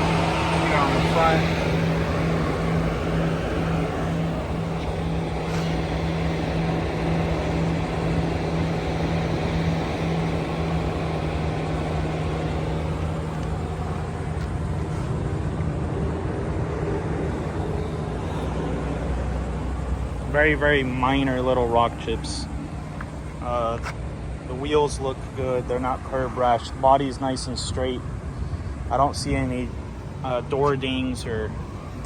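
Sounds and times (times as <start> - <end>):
mechanical hum with low drone: 0.0 - 32.0.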